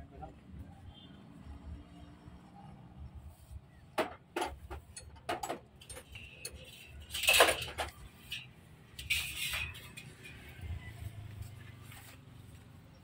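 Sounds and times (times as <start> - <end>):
metal tools clinking and clattering: 4.3 - 10.8.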